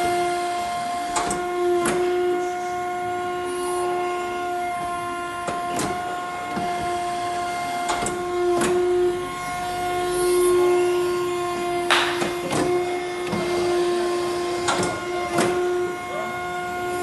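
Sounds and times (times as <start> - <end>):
machine whining: 0.0 - 17.0
sharp clicks or knocks: 11.9 - 12.7.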